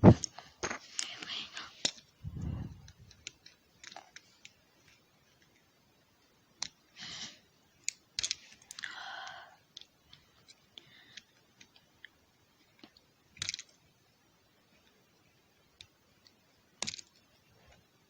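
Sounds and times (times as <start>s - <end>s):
plastic toy parts clicking: 2.8s - 4.6s, 7.8s - 8.9s, 12.8s - 13.8s, 16.8s - 17.3s.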